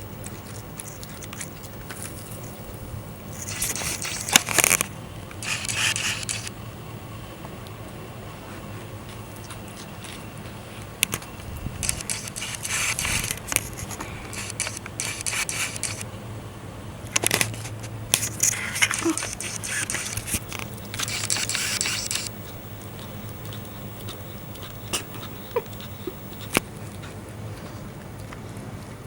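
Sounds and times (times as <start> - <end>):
lizard eating egg scraping crackling: 3.2 - 6.5, 9.4 - 16.1, 17.1 - 27.7
sharp clicks: 3.4 - 6.5, 11.0 - 16.1, 17.1 - 22.4.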